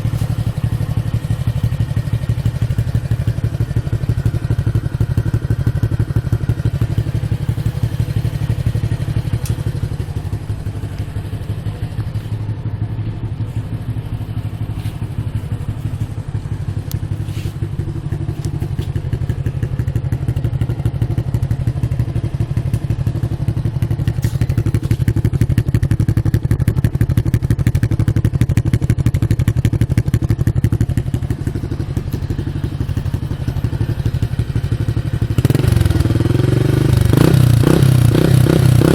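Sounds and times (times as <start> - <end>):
motorcycle engine exhaust pulse: 0.0 - 38.9.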